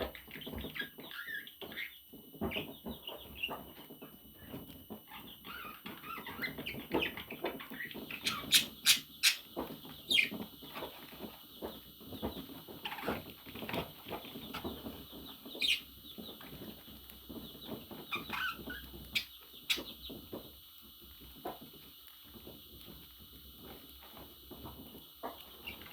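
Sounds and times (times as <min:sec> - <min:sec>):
parrot chirps and squawks: 0:08.2 - 0:09.4, 0:18.1 - 0:19.8.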